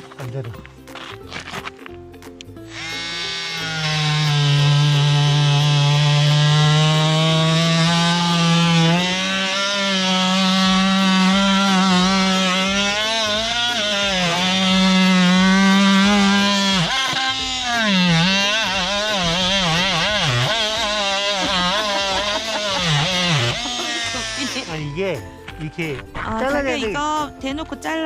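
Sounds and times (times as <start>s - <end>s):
oscillating multi-tool cutting wood: 2.7s - 25.0s.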